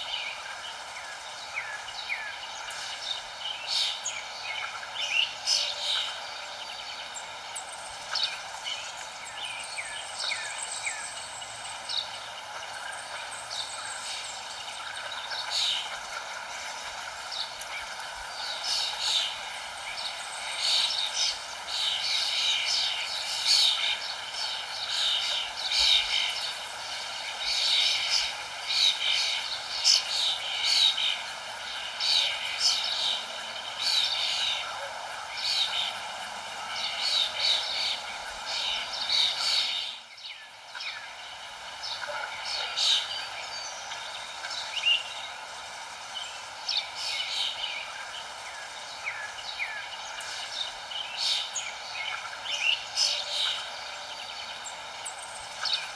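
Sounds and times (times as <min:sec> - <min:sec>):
background hiss: 0:00.0 - 0:55.9
wild birds chirping: 0:00.0 - 0:55.9.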